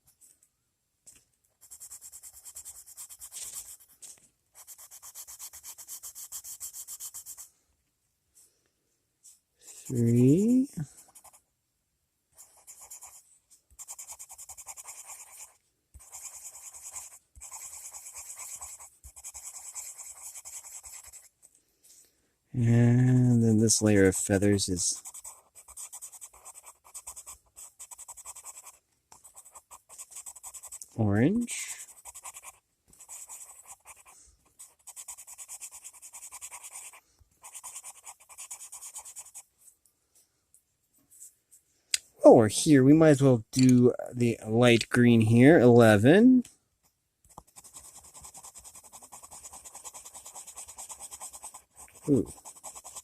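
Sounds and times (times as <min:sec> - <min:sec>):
pencil scribbling on paper: 0:01.6 - 0:07.5, 0:09.7 - 0:11.5, 0:12.4 - 0:21.5, 0:23.3 - 0:39.5, 0:47.3 - 0:53.0.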